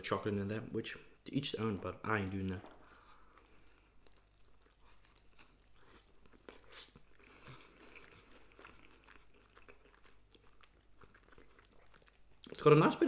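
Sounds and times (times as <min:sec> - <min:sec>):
person chewing pizza: 0:01.6 - 0:12.8.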